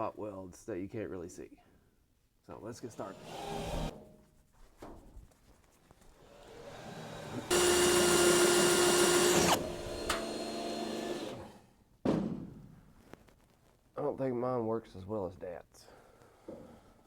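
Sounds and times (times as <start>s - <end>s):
electric drill drilling metal: 3.0s - 4.0s, 6.2s - 11.6s.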